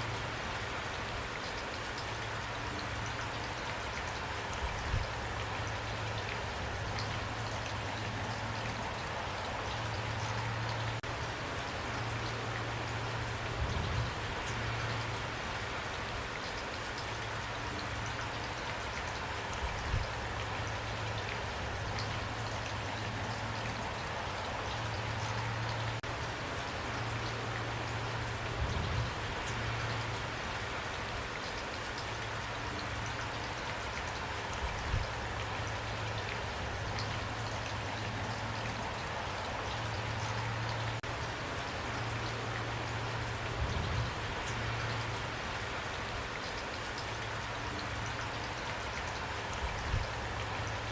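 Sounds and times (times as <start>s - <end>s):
rain falling on a surface: 0.0s - 50.9s.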